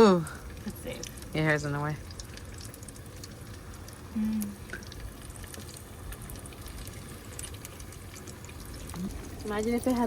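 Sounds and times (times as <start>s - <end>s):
person humming: 4.2s - 4.6s.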